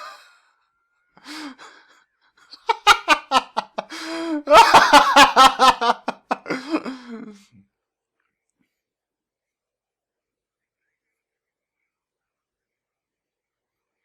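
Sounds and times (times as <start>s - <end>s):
person laughing: 2.5s - 7.5s.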